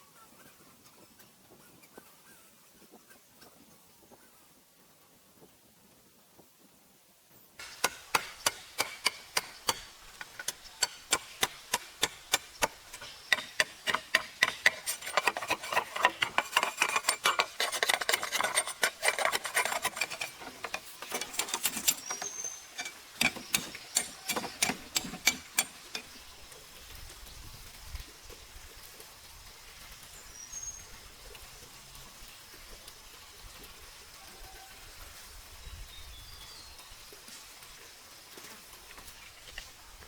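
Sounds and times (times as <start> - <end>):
tool knocking on hard object: 7.7 - 17.6.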